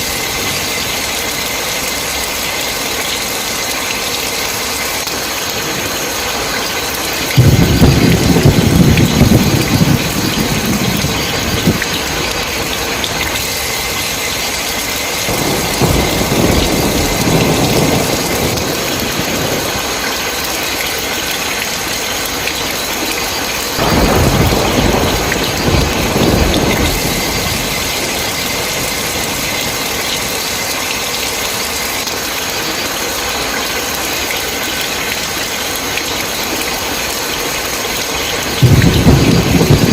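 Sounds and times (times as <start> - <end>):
heavy rain: 0.0 - 39.9
thunder rolling: 7.2 - 21.4, 23.8 - 31.1, 38.5 - 39.9.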